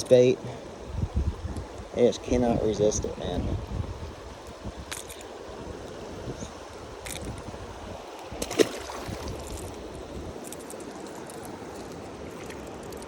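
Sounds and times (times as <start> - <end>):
creek water running: 0.0 - 13.0
sharp knock or splash: 8.4 - 9.3.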